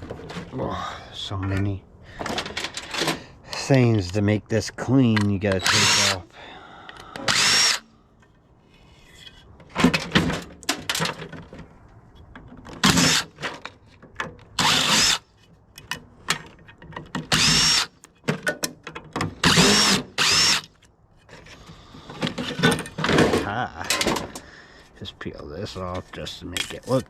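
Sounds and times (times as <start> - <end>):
power drill whine: 5.6 - 6.2, 7.2 - 7.8, 14.6 - 15.2, 17.3 - 17.9, 19.4 - 20.7.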